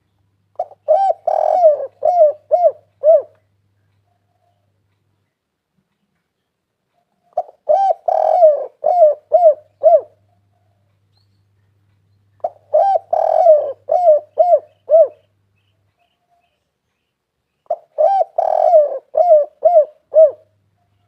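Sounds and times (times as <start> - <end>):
dove cooing: 0.5 - 3.5, 7.1 - 10.8, 12.4 - 15.3, 17.7 - 21.0.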